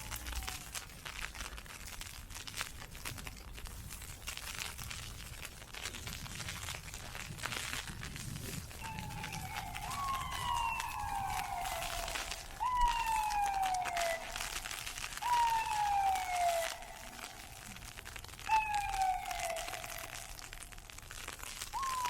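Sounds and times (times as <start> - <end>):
emergency vehicle siren wailing: 0.0 - 1.1, 8.8 - 21.0, 21.7 - 22.0
footsteps crunching on ice pellets: 0.0 - 22.0.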